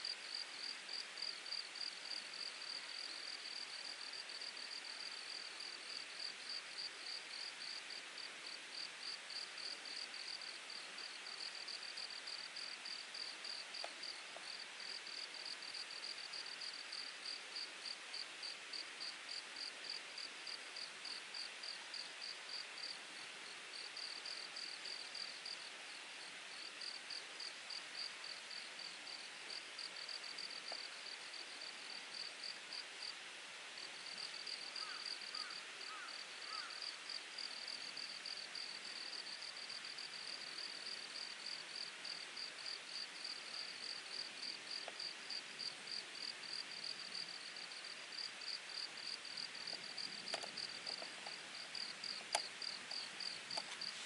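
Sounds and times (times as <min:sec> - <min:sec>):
insect chirping: 0:00.0 - 0:23.0, 0:33.8 - 0:54.0.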